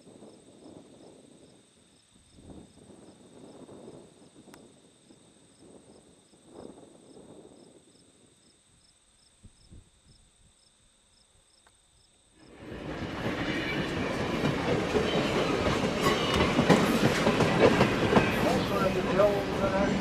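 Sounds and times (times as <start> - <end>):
train rolling past: 12.4 - 20.0
wheels squealing on rails: 12.5 - 20.0.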